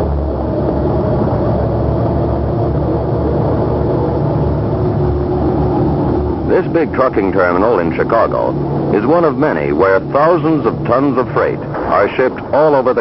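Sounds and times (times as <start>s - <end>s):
truck engines running: 0.0s - 13.0s.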